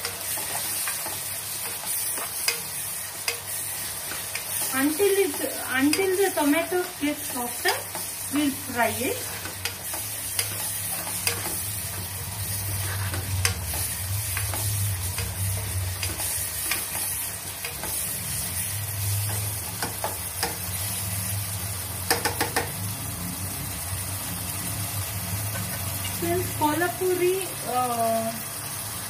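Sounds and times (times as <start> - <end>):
spatula scraping and tapping pan: 0.0 - 8.5, 9.1 - 18.6, 19.2 - 20.8, 22.0 - 22.8
onions and tomatoes sizzling: 0.0 - 29.0.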